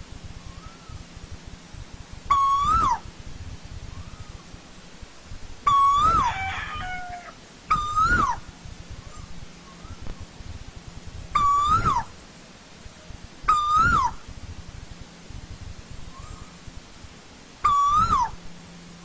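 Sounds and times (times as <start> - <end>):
koel calling: 2.3 - 3.1, 5.7 - 8.5, 11.4 - 12.2, 13.4 - 14.2, 17.6 - 18.4.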